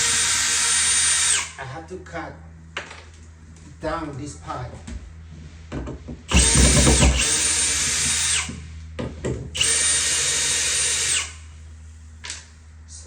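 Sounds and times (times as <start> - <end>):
power drill motor whine: 0.0 - 1.6, 6.3 - 8.7, 9.6 - 11.6.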